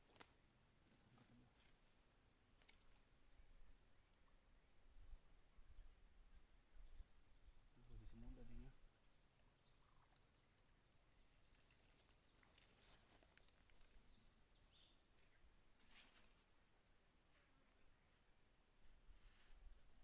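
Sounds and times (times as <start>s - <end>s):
faint clicks: 2.6s - 3.0s, 10.9s - 14.0s.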